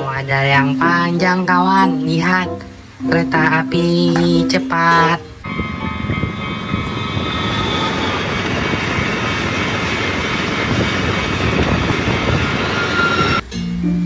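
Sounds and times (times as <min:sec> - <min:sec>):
steady high tones: 0:04.8 - 0:13.4
train rushing on rails: 0:05.4 - 0:13.5.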